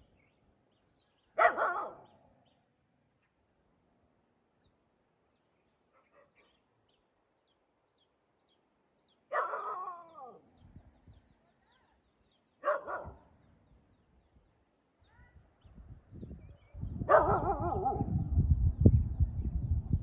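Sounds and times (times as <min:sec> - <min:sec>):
dog barking: 0:01.4 - 0:02.1, 0:05.9 - 0:06.6, 0:09.3 - 0:10.4, 0:12.6 - 0:13.3, 0:17.0 - 0:18.2.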